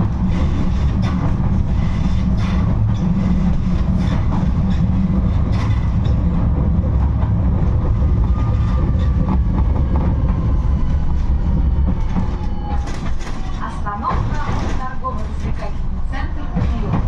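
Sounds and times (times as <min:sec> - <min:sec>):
tram rumbling on track: 0:00.0 - 0:17.0
wheels clicking over rail joints: 0:11.8 - 0:17.0.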